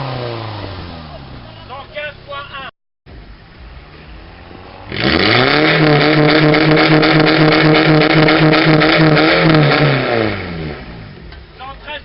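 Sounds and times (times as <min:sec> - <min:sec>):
engine revving through exhaust: 0:00.0 - 0:01.4, 0:03.6 - 0:11.2.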